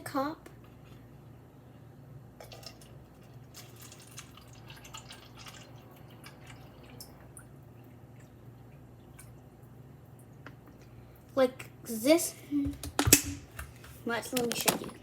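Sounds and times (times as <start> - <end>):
water dripping into a cup: 2.4 - 10.9.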